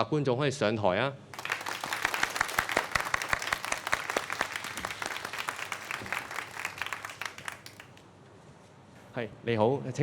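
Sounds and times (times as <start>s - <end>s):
audience applauding: 1.4s - 8.0s.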